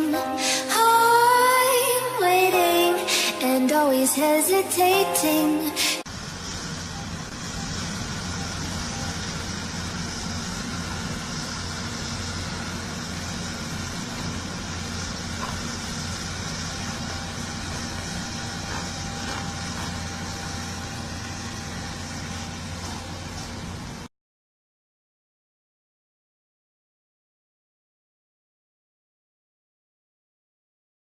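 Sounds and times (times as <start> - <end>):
heavy machine engine humming: 0.0 - 24.1.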